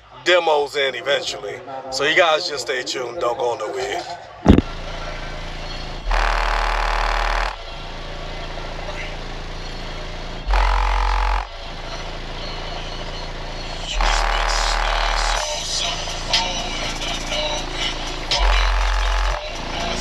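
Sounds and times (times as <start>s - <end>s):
car audio deep bass bursts: 4.5s - 20.0s
background voices: 13.6s - 20.0s.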